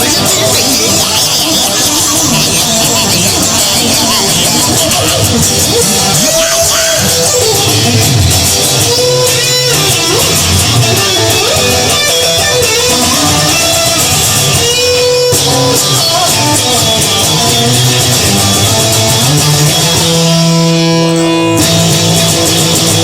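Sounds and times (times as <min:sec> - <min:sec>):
blues electric guitar: 0:00.0 - 0:23.0
steady bass line: 0:00.0 - 0:23.0.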